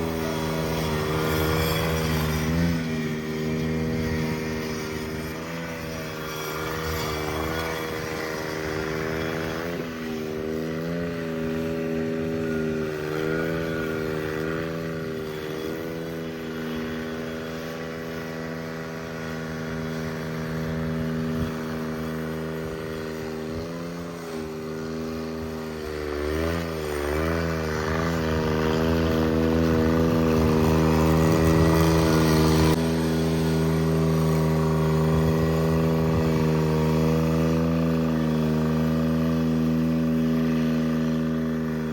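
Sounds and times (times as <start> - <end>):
garden tractor engine running: 0.0 - 41.9.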